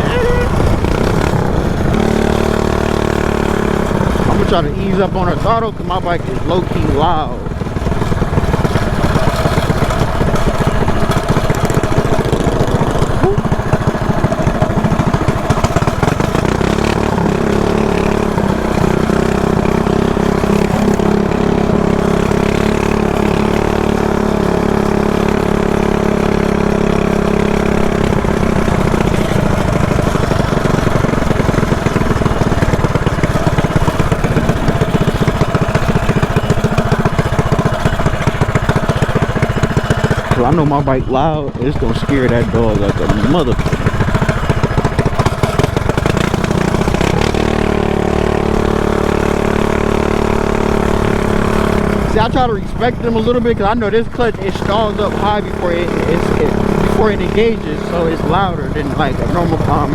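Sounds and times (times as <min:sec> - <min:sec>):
mini bike engine running: 0:00.0 - 0:59.9.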